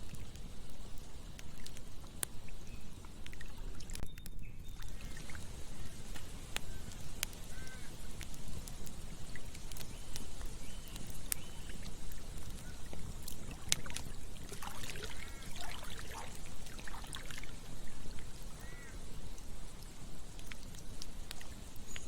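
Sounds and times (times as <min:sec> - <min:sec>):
campfire crackling and popping: 0:00.0 - 0:22.0
short chirping calls: 0:04.0 - 0:08.6, 0:09.5 - 0:12.9
flowing water rushing: 0:04.8 - 0:21.8.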